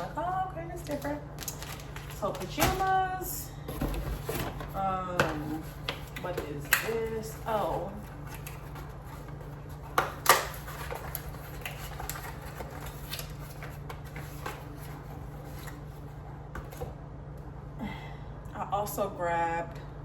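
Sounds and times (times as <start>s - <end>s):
package rustling and crinkling: 0.0s - 3.1s, 5.6s - 16.0s
steady low hum: 0.0s - 20.0s.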